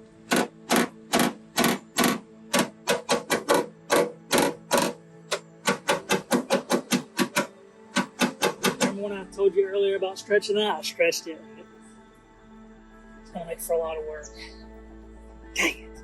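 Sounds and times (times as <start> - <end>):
hammer tapping on car panel: 0.3 - 9.0.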